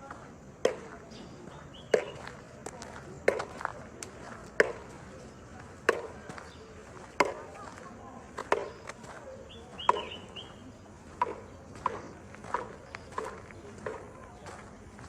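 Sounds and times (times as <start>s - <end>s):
footsteps on road: 0.0s - 15.0s
bird chirping: 1.1s - 2.4s, 8.5s - 14.8s.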